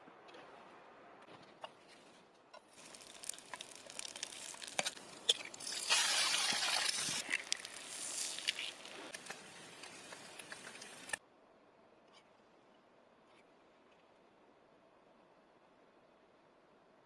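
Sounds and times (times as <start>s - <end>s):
fire crackling and popping: 1.6s - 11.2s
food sizzling in a pan: 2.7s - 11.2s.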